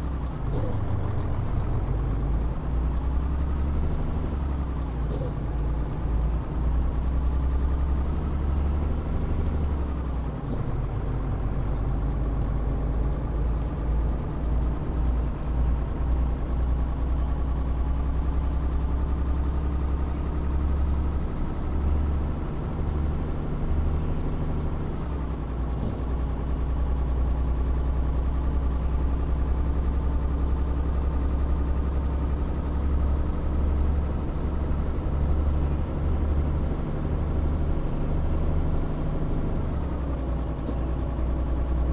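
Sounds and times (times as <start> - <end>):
truck diesel engine rumbling: 0.0 - 41.9
faint gear change tick: 13.6 - 13.8.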